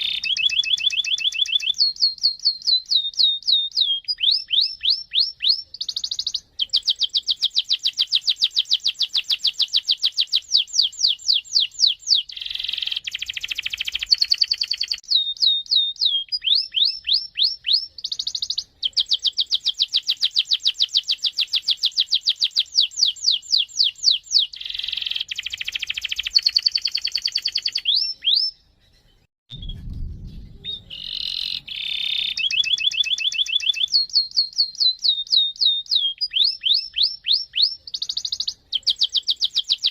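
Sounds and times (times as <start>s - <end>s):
canary singing trills: 0.0s - 29.7s, 30.6s - 39.9s
dull low thump: 29.5s - 31.0s.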